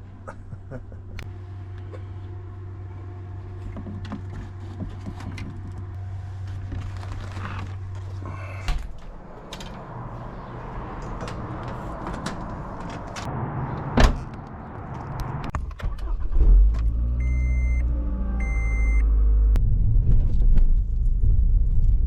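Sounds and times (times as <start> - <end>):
car engine starting and running: 1.0 - 20.3
short electronic beeps: 17.2 - 17.8.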